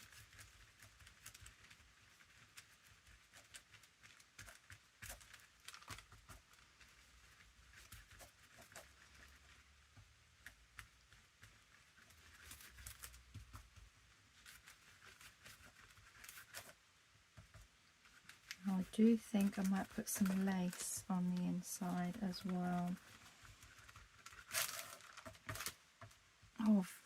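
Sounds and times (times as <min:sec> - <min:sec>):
paper rustling and tapping: 0:00.0 - 0:27.0.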